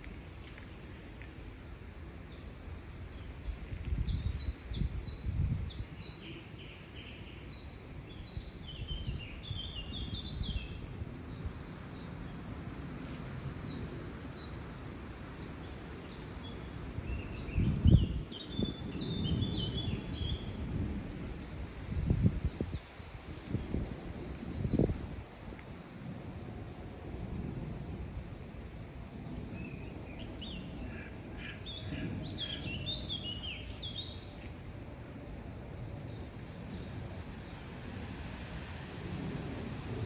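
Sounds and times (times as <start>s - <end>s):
low rumbling surges: 7.7s - 40.0s
small birds chirping: 15.2s - 25.9s.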